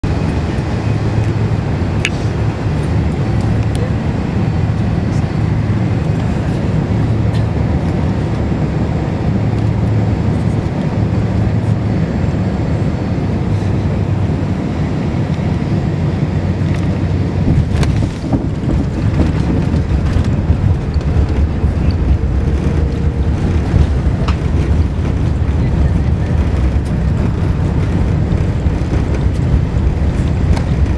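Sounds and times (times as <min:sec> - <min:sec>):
aircraft cabin engine rumble: 0:00.0 - 0:30.9
low hum: 0:00.0 - 0:30.9.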